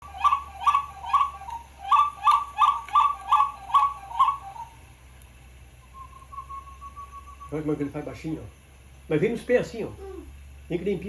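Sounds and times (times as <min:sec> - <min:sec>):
bird two-note calls: 0:00.1 - 0:04.9.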